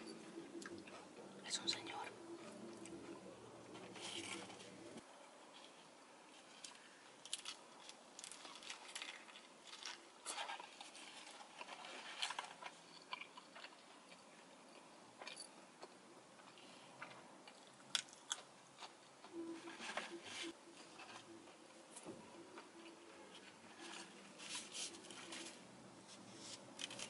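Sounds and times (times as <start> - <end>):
lettuce crunching while chewing: 6.4 - 14.3, 17.0 - 19.0.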